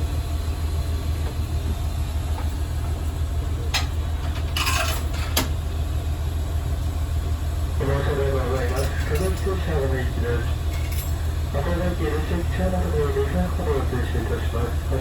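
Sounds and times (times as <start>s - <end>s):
diesel railcar engine drone: 0.0s - 15.0s.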